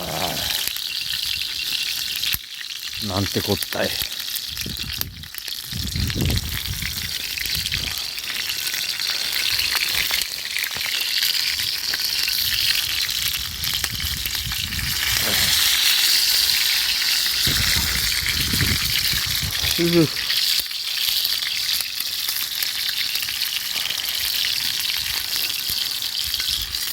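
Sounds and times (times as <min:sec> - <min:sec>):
meat sizzling over fire: 0:00.0 - 0:26.9.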